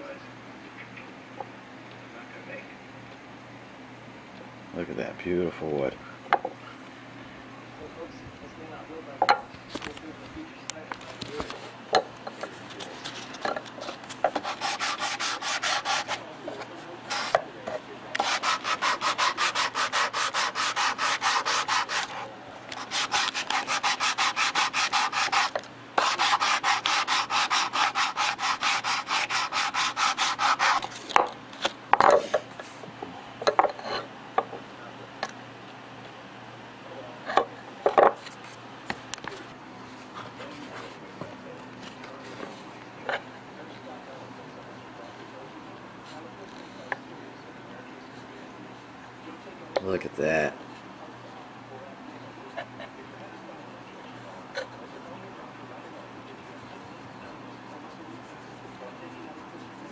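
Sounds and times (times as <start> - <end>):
sandpaper rubbing on wood: 14.4 - 16.2, 17.1 - 17.4, 18.2 - 31.0.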